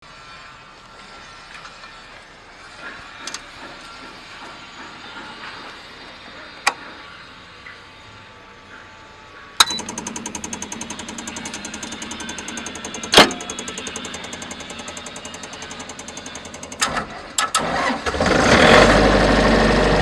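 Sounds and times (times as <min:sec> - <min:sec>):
engine starting and running: 0:09.6 - 0:20.0.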